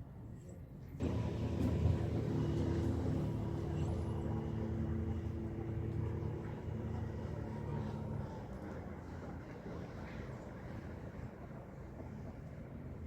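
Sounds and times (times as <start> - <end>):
motor humming: 1.0 - 6.5.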